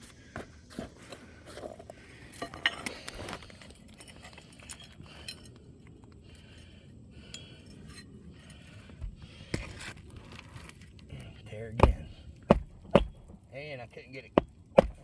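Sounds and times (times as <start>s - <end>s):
nails and tools tapping on roof: 11.8s - 13.4s, 14.3s - 15.0s.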